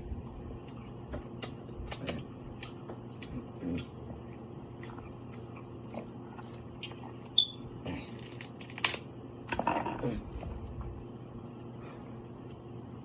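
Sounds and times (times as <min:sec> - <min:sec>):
chewing and biting seafood: 0:00.6 - 0:07.4.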